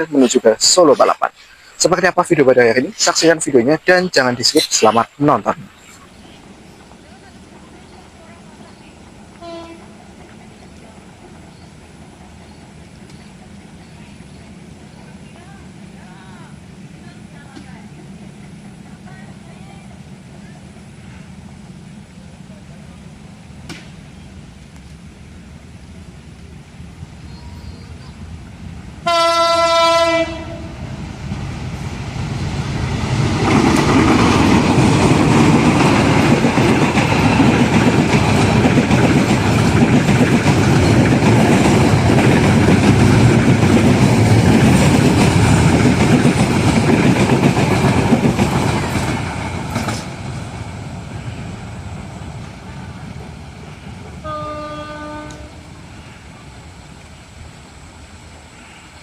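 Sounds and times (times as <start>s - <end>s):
locomotive engine passing: 0.0s - 59.0s
train wheels on rails: 0.0s - 59.0s
locomotive horn blast: 9.4s - 9.9s, 29.0s - 30.8s, 54.2s - 55.7s.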